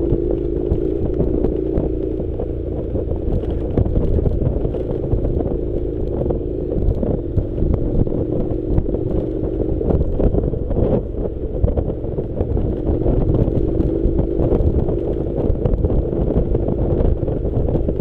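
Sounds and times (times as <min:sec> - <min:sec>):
motorcycle engine running: 0:00.0 - 0:18.0
wind on microphone: 0:00.0 - 0:18.0.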